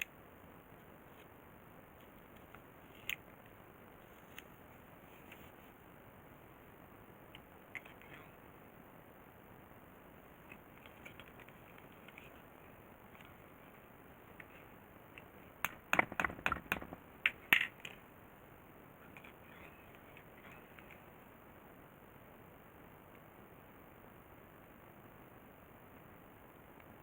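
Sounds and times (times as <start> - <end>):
sharp clicks and knocks: 15.6 - 18.0.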